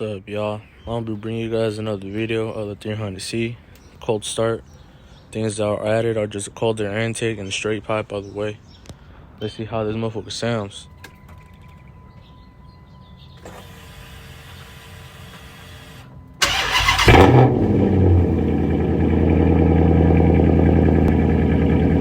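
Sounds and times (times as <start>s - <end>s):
car engine cranking and idling: 13.4s - 22.0s.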